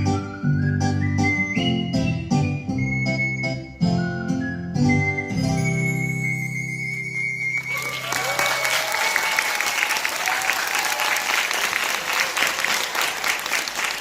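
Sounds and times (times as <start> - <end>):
audience applause: 7.2 - 14.0.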